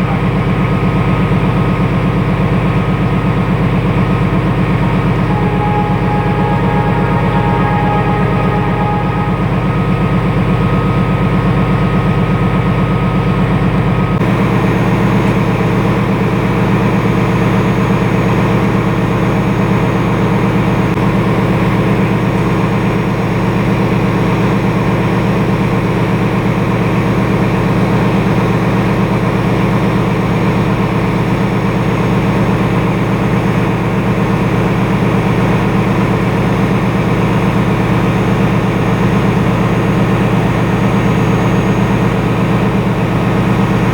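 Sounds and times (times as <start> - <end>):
locomotive droning: 2.9 - 14.6
thin high tone: 4.6 - 11.4.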